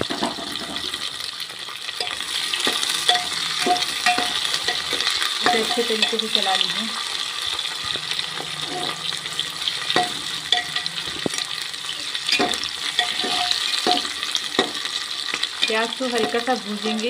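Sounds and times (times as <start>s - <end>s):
onions sizzling in hot oil: 0.0s - 17.0s
spatula scraping and knocking pot: 2.0s - 6.4s, 7.8s - 9.1s, 12.3s - 16.5s.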